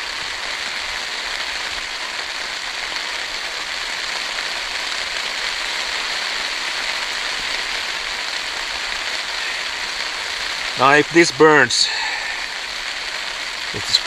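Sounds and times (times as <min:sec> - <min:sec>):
heavy rain on a tarp: 0:00.0 - 0:14.0.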